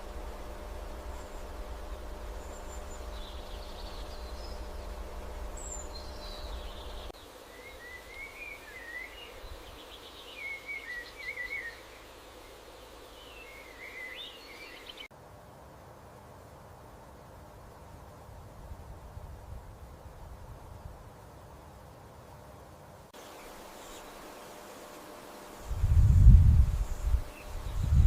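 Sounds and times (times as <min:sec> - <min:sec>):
low steady hum: 0:00.0 - 0:16.2, 0:23.2 - 0:28.0
birds chirping and singing: 0:01.0 - 0:11.9.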